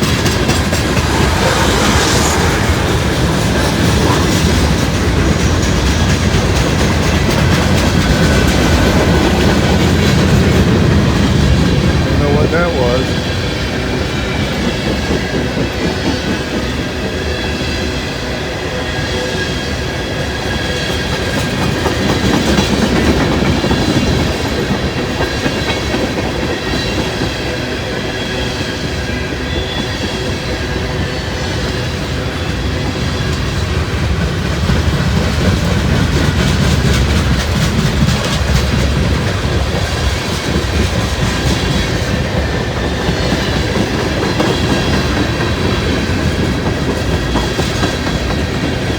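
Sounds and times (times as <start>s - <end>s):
clickety-clack over rail joints: 0.0s - 48.9s
train wheels rumbling on rail: 0.0s - 48.9s.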